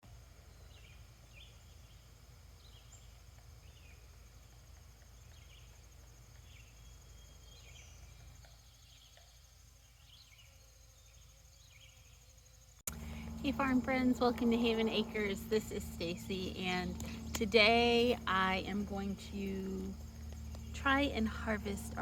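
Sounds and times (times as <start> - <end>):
high insect trill: 0.4 - 22.0
small birds chirping: 0.4 - 22.0.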